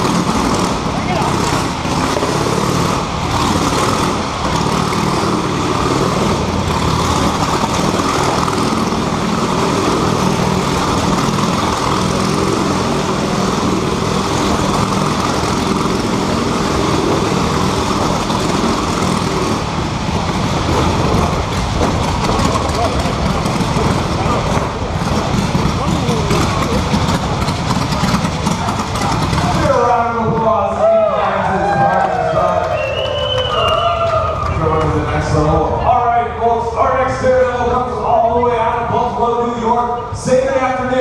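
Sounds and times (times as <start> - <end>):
motorcycle engine running loudly: 0.0 - 41.0.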